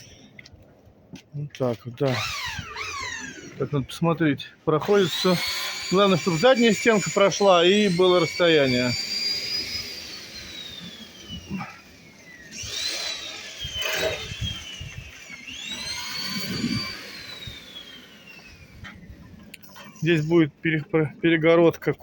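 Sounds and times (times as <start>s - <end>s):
power tool motor whining: 2.0s - 4.0s, 4.8s - 20.3s.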